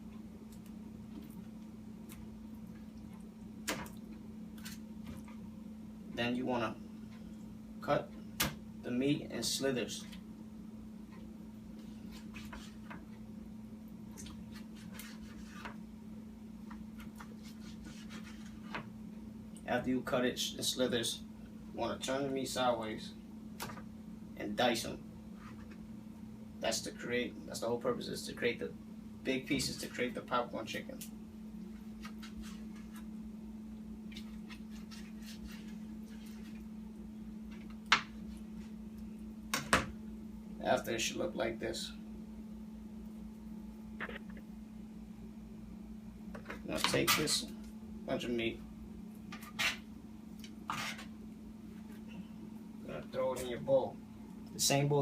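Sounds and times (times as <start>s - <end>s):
steady low hum: 0.0s - 55.0s
knife cutting on cutting board: 50.7s - 51.1s.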